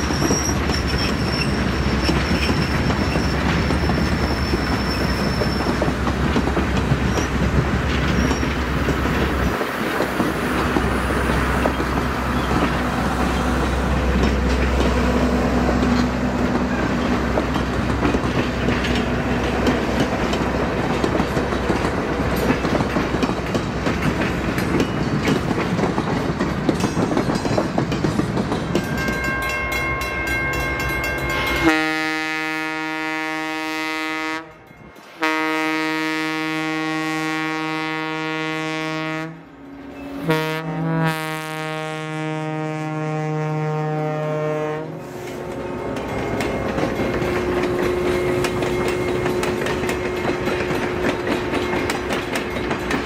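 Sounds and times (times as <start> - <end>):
train wheels on rail: 0.0 - 53.0
locomotive horn chord: 31.4 - 39.5, 40.2 - 45.1.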